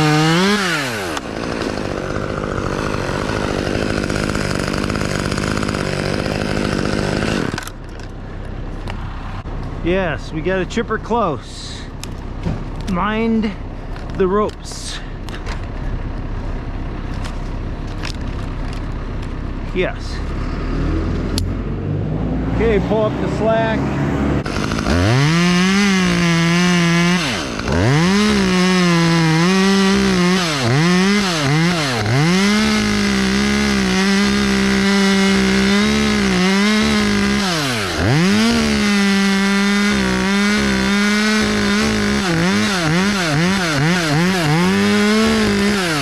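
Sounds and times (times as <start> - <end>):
chainsaw cutting wood: 0.0 - 9.0, 24.4 - 46.0.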